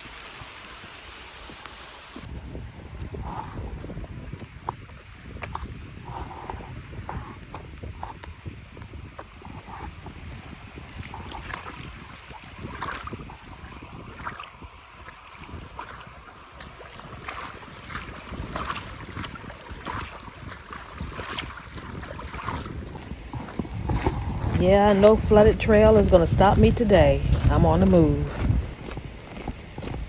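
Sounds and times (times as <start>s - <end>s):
wind rumbling on microphone: 0.0s - 30.0s
boots crunching on trail: 15.2s - 25.0s, 27.2s - 30.0s.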